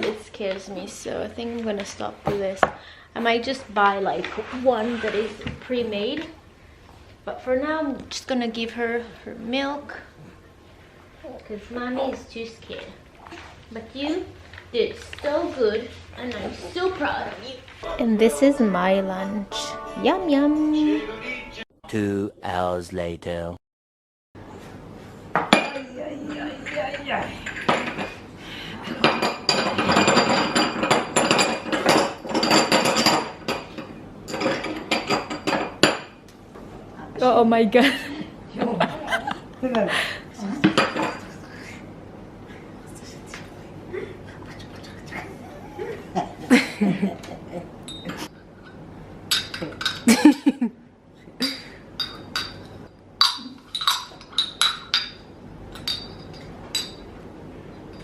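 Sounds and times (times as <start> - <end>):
voice-like sound: 21.8 - 23.6
dishes and cutlery clattering: 25.4 - 28.2, 28.8 - 36.2, 40.6 - 41.4, 47.9 - 50.3, 52.0 - 57.1
tableware clinking: 25.4 - 28.2, 28.9 - 36.2, 40.6 - 41.4, 47.8 - 48.3, 49.3 - 50.3, 52.0 - 57.2.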